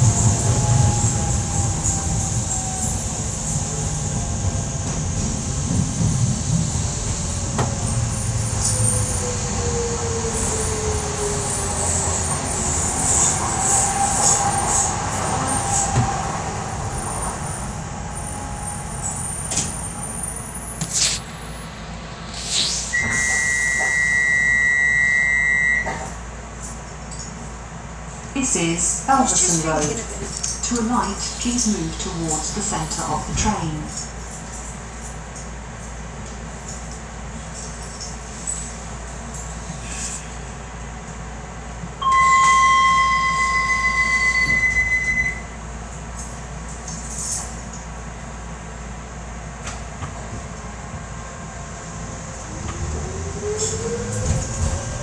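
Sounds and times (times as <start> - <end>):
train rumble with motor whine: 0.0 - 55.0
short hiss of air: 20.8 - 21.3, 22.3 - 23.8.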